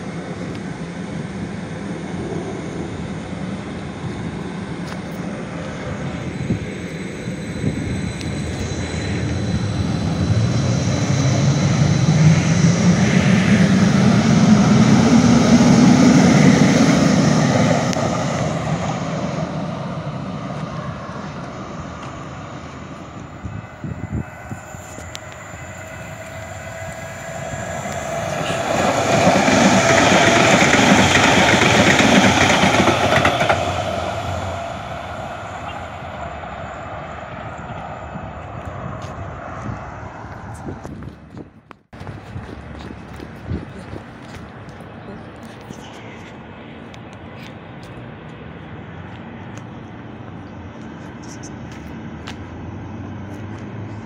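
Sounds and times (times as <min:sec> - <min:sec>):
train passing with low hum: 0:00.0 - 0:54.0.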